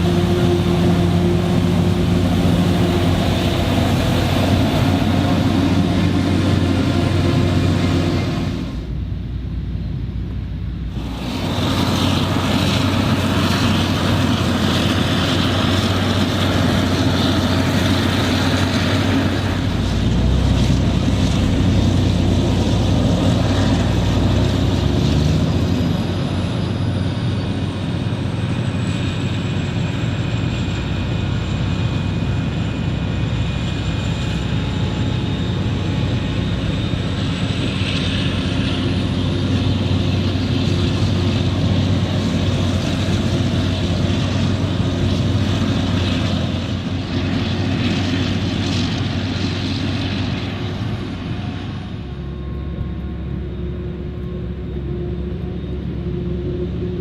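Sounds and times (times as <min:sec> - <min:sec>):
wide rushing noise: 0:00.0 - 0:27.4
harvester diesel engine running: 0:00.0 - 0:57.0
faint high whine: 0:31.5 - 0:57.0.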